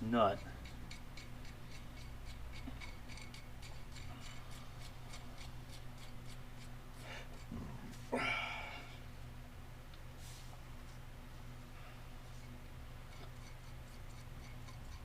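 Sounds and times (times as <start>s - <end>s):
nut ticking along threads: 0.1s - 7.5s, 13.0s - 15.0s.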